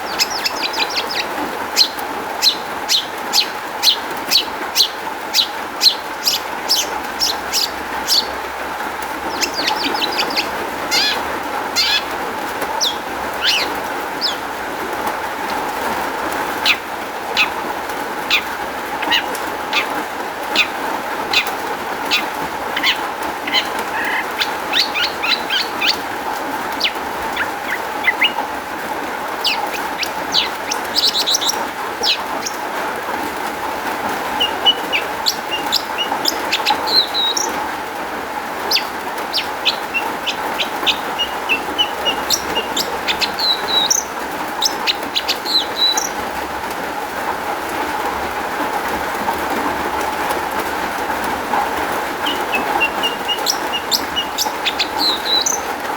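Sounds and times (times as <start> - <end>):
shrike singing: 0.0 - 14.8, 18.3 - 33.0, 33.9 - 37.7, 38.6 - 46.2, 52.1 - 55.8.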